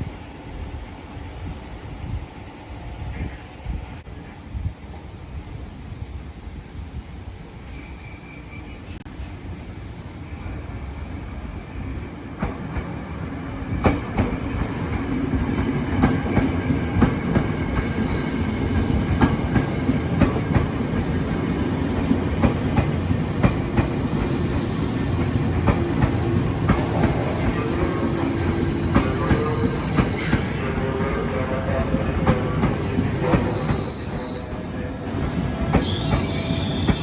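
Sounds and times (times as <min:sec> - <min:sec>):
train rumble and hum: 0:00.0 - 0:37.0
train wheels clicking over rail joints: 0:12.4 - 0:30.5.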